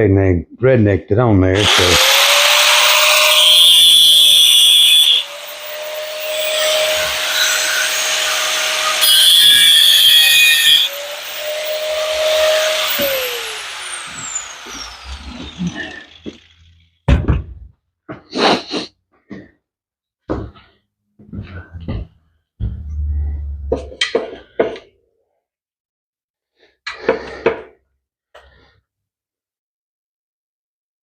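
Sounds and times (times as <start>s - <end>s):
electric grinder cutting metal: 1.6s - 17.0s
grinder winding down: 1.6s - 17.0s.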